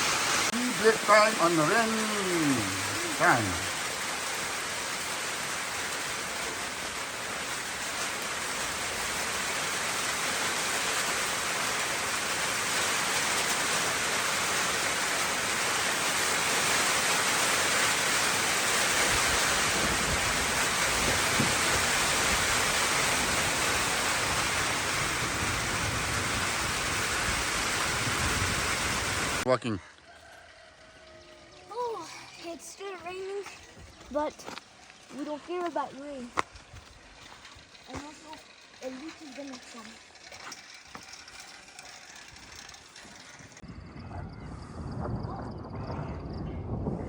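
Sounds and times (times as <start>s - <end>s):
rain falling: 0.0s - 29.5s, 30.2s - 43.6s
low rumble: 43.6s - 47.0s.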